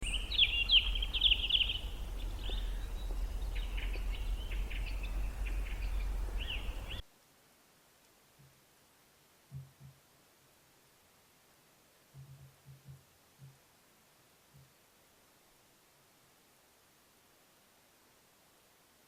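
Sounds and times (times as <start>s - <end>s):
low background rumble: 0.0s - 7.0s
small birds chirping: 0.0s - 7.0s.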